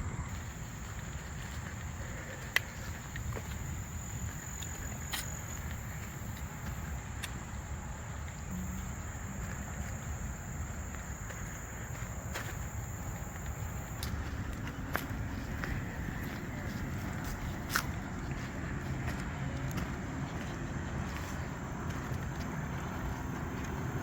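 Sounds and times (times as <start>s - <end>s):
high-pitched insect chorus: 0.0s - 24.0s.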